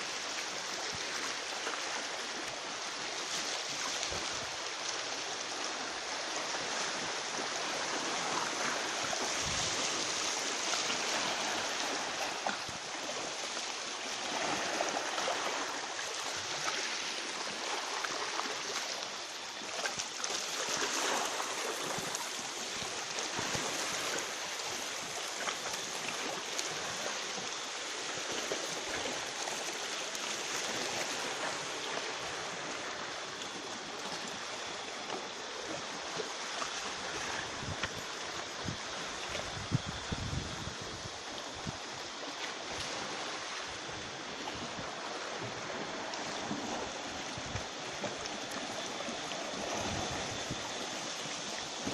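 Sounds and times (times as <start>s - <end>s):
sea water rushing: 0.0s - 51.9s.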